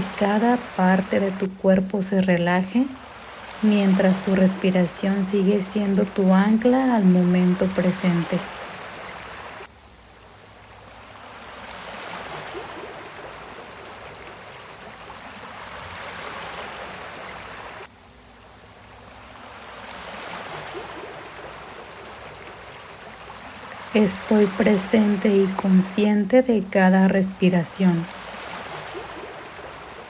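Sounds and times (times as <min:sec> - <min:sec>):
sea waves washing: 0:00.0 - 0:30.0.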